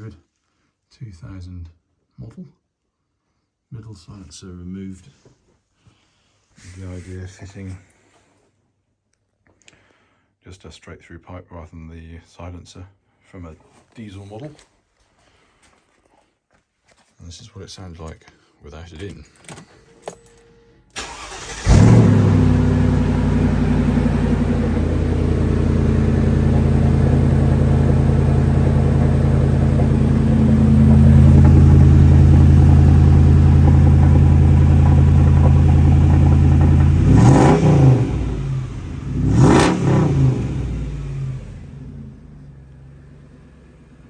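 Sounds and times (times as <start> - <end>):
engine throttle blips: 21.0 - 43.9
car engine starting and idling: 21.0 - 44.0.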